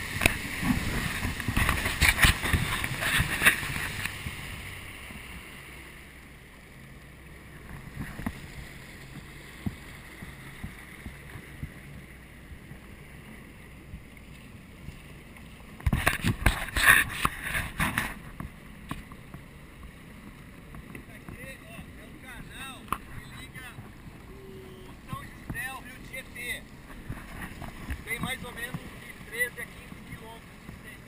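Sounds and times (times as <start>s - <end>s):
water ticking against hull: 0.0s - 5.3s, 7.1s - 24.3s, 24.9s - 31.0s
rough knocks and splashes: 0.0s - 5.4s, 7.4s - 11.9s, 13.8s - 24.2s, 25.0s - 30.8s
jet ski engine running: 0.0s - 31.0s.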